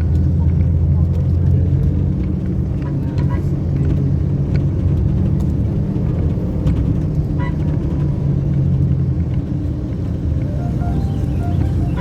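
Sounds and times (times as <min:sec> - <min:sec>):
road rumble: 0:00.0 - 0:12.0
engine drone: 0:09.9 - 0:12.0.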